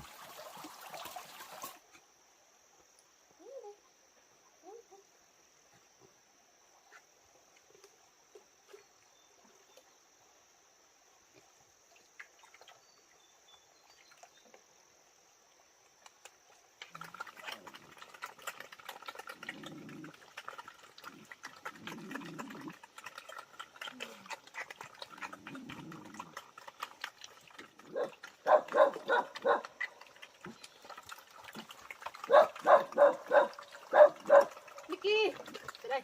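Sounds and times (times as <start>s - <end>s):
pigs grunting: 16.9s - 35.8s.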